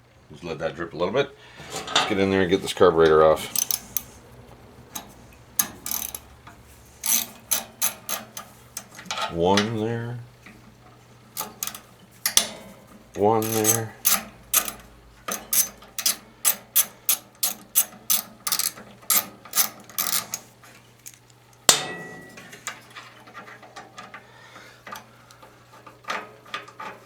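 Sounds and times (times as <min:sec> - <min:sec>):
ratchet wrench clicking: 0:03.4 - 0:04.2, 0:04.9 - 0:09.7, 0:11.4 - 0:12.6, 0:13.4 - 0:21.2
loud metallic clank: 0:21.7 - 0:22.7.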